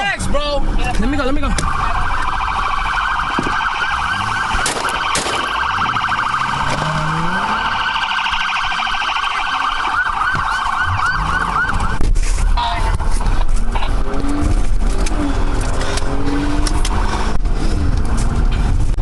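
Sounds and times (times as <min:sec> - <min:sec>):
police siren yelping: 0:01.2 - 0:14.2.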